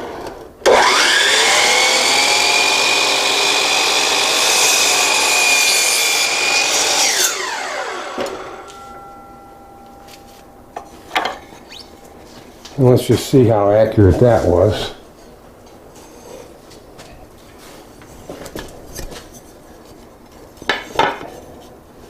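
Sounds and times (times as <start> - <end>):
miter saw cutting board: 0.6 - 8.9
shop vacuum humming: 0.6 - 10.9.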